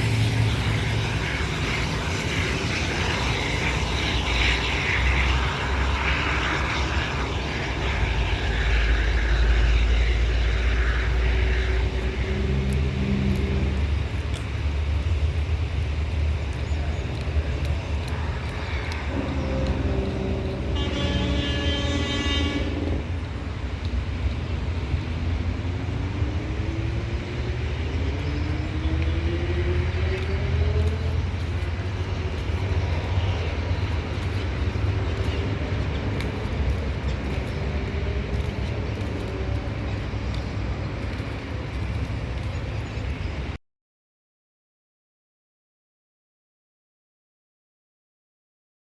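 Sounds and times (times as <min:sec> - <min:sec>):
rising whine: 0:00.0 - 0:43.1
train rumbling: 0:00.0 - 0:43.6
train horn: 0:18.6 - 0:23.3.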